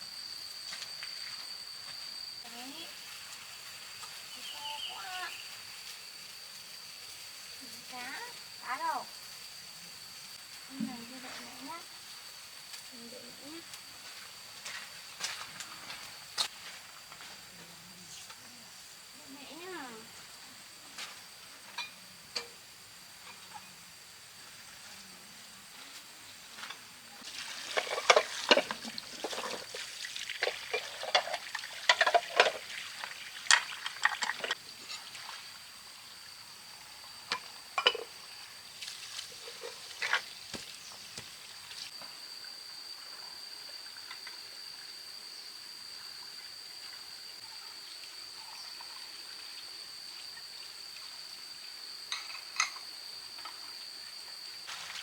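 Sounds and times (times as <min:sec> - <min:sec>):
water splashing and trickling: 0:27.2 - 0:36.4, 0:37.7 - 0:41.9, 0:54.6 - 0:55.0.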